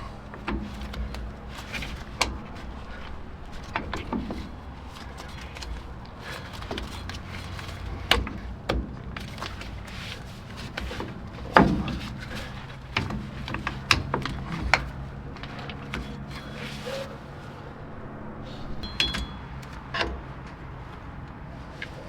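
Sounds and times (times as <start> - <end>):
metal brake parts clinking: 18.5 - 22.0.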